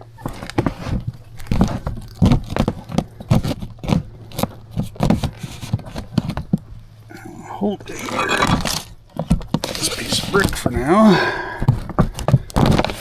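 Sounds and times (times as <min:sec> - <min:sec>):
steady low hum: 0:00.0 - 0:13.0
plastic sheet crinkling and rustling: 0:11.8 - 0:13.0.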